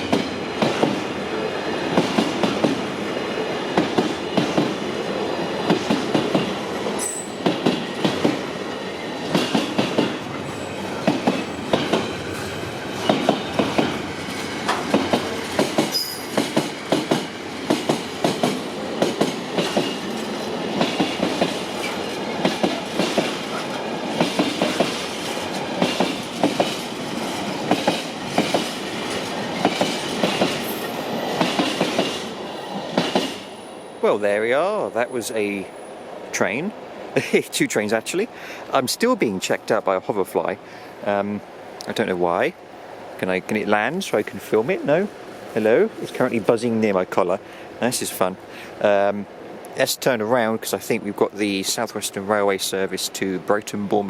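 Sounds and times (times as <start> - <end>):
train wheels clattering over rail joints: 0.0 - 1.0, 1.9 - 2.9, 5.6 - 8.4, 9.2 - 32.3, 32.9 - 33.5.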